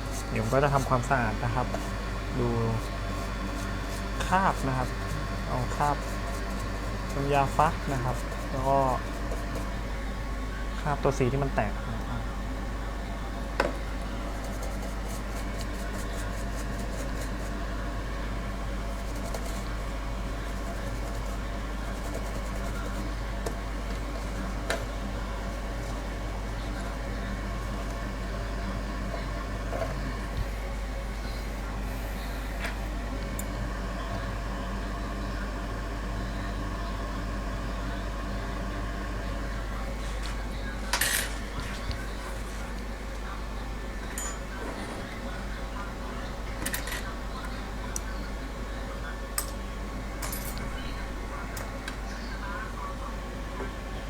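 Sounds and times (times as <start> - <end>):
light scratching: 0.0 - 9.8, 14.3 - 17.7, 18.8 - 28.1
low electrical hum: 0.0 - 54.0.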